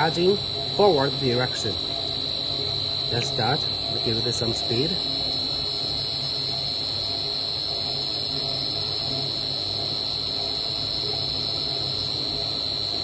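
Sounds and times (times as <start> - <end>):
mixer motors high-pitched whine: 0.0 - 13.0.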